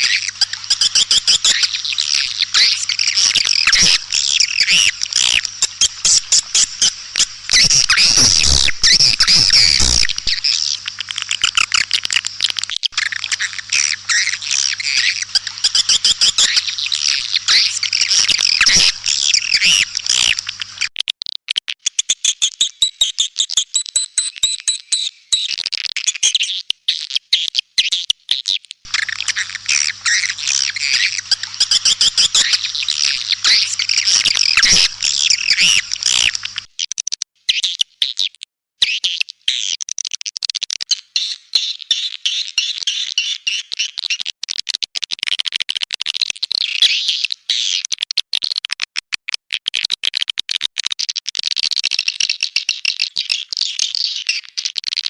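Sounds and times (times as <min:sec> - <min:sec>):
bird twittering chirps: 0:00.0 - 0:20.9, 0:28.9 - 0:36.7.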